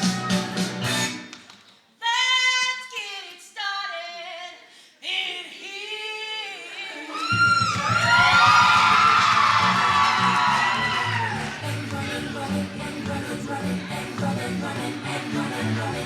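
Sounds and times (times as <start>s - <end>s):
band music: 0.0s - 1.3s
high voice singing alone: 10.8s - 16.0s.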